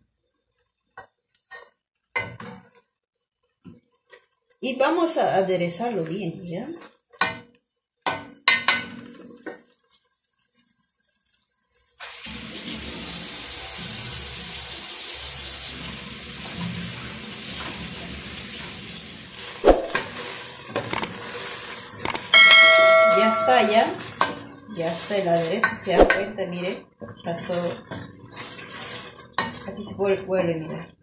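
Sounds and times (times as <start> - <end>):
paste sizzling in oil: 9.4 - 22.4, 23.0 - 26.0, 27.0 - 30.0.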